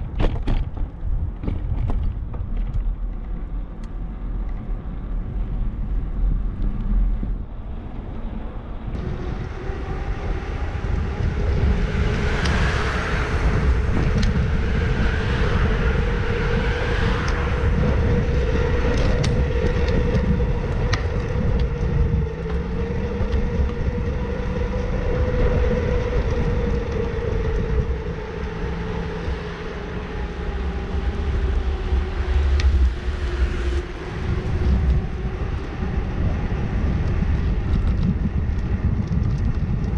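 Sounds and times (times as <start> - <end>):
bicycle road noise: 0.0 - 39.9
wind rumbling on microphone: 0.0 - 39.9
steady hum: 8.5 - 38.5.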